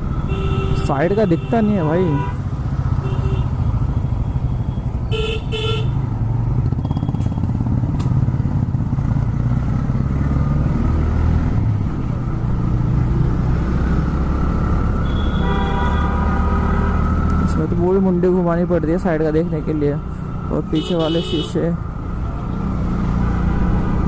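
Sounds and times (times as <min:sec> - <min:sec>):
vehicle horn honks: 0:00.3 - 0:02.4, 0:05.1 - 0:06.0, 0:15.0 - 0:16.9, 0:20.8 - 0:21.5.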